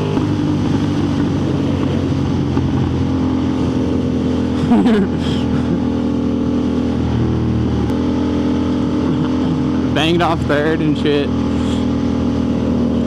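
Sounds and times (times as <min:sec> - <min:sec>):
wind rush on microphone: 0:00.0 - 0:07.9
motorcycle engine at speed: 0:00.0 - 0:13.0.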